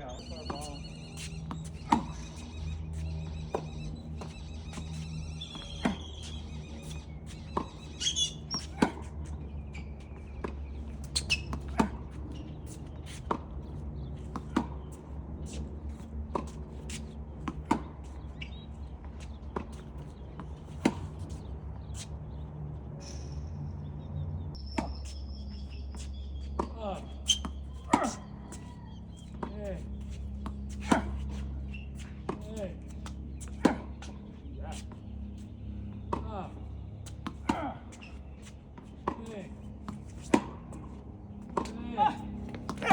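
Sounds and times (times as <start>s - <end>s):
tennis ball hit by rackets: 0.4s - 2.4s, 3.0s - 9.1s, 10.0s - 15.6s, 19.2s - 22.1s, 26.6s - 34.9s, 37.0s - 42.9s.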